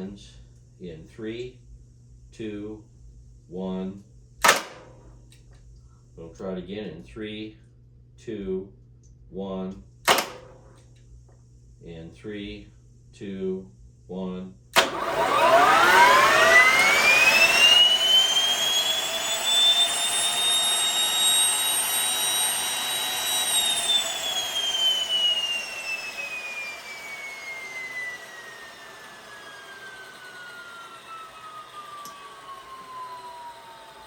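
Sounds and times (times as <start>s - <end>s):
turbine engine whine: 10.1s - 10.6s, 14.8s - 34.0s.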